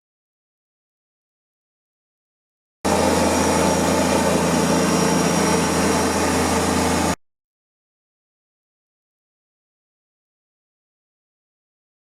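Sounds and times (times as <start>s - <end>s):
tractor diesel engine humming: 2.9s - 7.2s.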